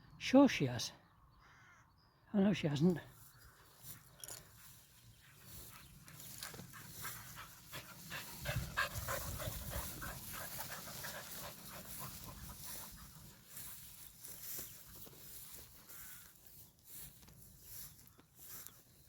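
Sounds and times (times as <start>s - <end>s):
dog panting: 5.2s - 14.2s.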